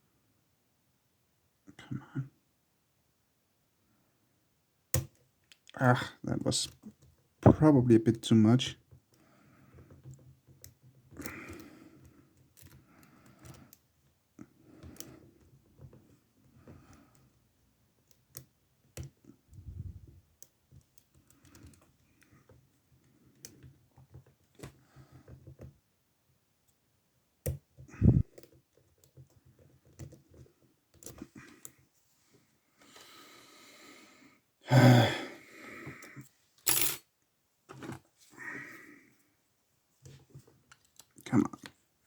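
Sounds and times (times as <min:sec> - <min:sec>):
lock picks clicking and scraping: 0:09.7 - 0:14.0, 0:36.6 - 0:37.1.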